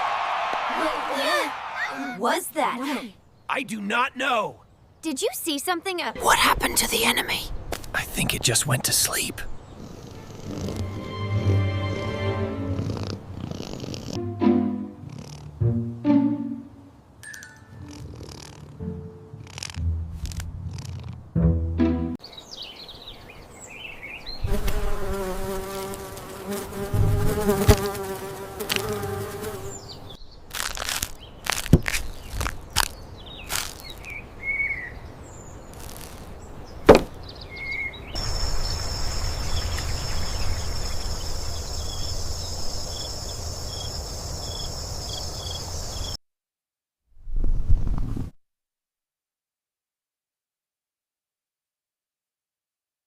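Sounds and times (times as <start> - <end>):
flying insect buzzing: 9.8 - 14.2, 17.8 - 18.8, 19.4 - 21.2, 24.4 - 29.9
cricket-like chirps: 38.1 - 46.2.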